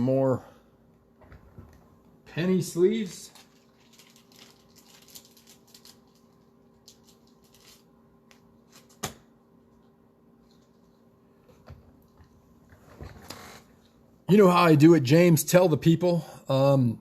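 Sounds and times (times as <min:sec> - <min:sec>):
faint hum: 0:00.0 - 0:17.0
cards and sleeves rustling: 0:02.8 - 0:07.9.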